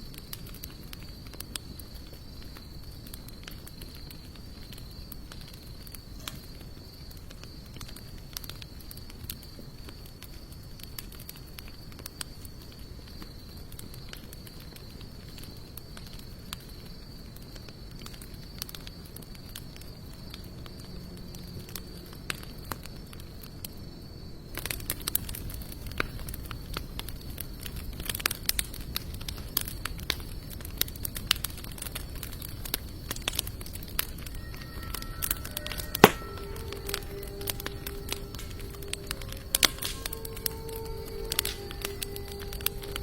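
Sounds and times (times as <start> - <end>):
wood fire crackling: 0.0 - 43.0
sharp pops from fire: 24.5 - 43.0
faint steady high tone: 34.3 - 43.0.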